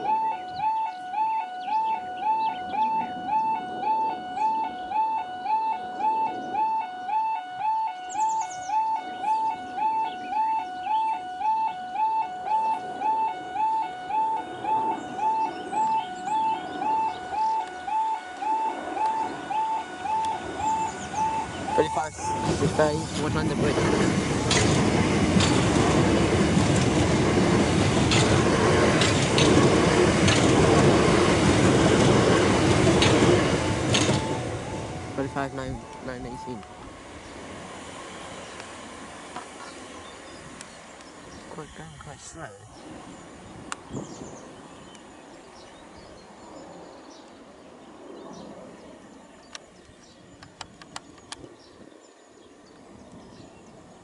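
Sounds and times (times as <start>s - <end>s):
outdoor background noise: 0.0s - 54.0s
small birds chirping: 8.1s - 11.2s, 20.5s - 23.9s, 39.4s - 53.9s
train wheels rumbling on rail: 12.6s - 45.7s
wheels clicking over rail joints: 20.2s - 36.7s
sharp clicks: 29.0s - 30.8s, 32.8s - 34.4s.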